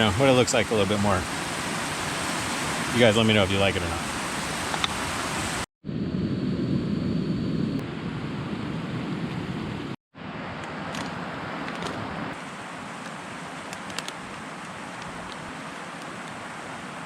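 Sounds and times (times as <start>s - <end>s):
river water rushing: 0.0s - 5.7s, 12.3s - 17.0s.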